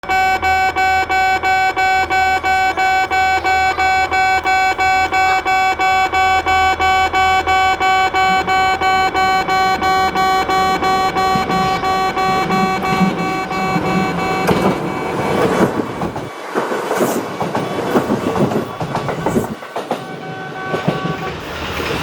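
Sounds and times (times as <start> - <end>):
level crossing warning bell: 0.0 - 16.3.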